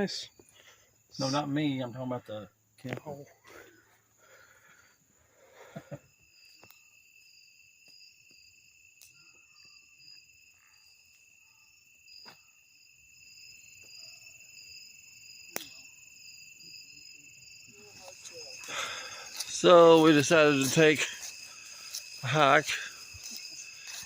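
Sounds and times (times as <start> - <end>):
crickets and insects chirping: 0.0 - 24.0.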